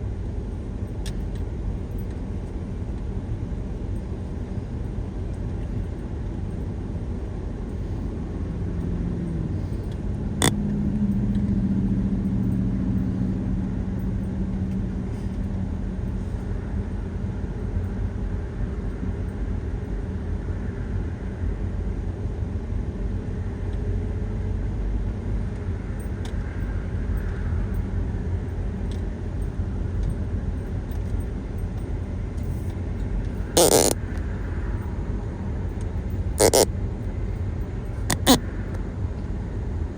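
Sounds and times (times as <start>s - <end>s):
vehicle running rumble: 0.0s - 19.0s
sharp click: 38.1s - 38.4s.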